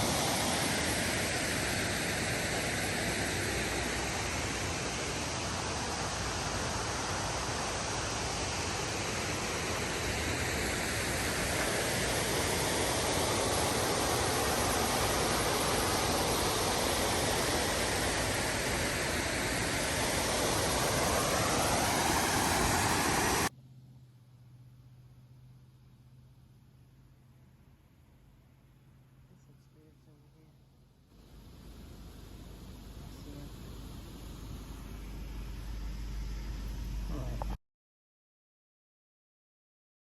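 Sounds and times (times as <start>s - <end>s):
waterfall rushing: 0.0s - 23.5s
low hum: 0.0s - 37.6s.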